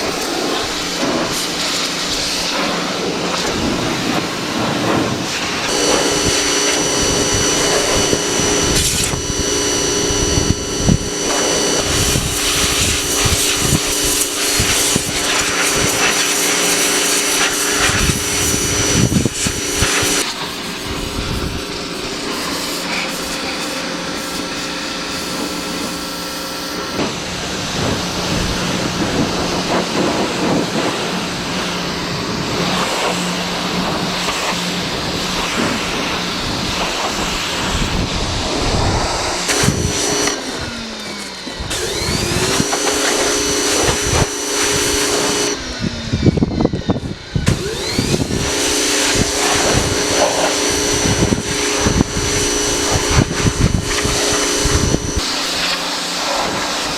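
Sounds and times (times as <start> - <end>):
pressure washer motor humming: 0.0 - 56.9
water jet hissing: 4.4 - 26.6, 38.5 - 45.6.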